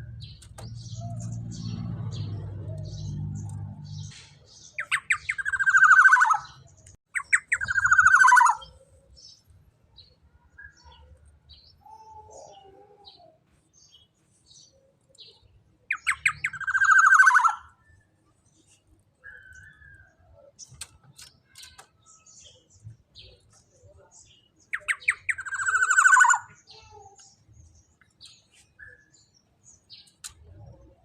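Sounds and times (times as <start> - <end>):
faint bird chips: 2.6 - 31.0.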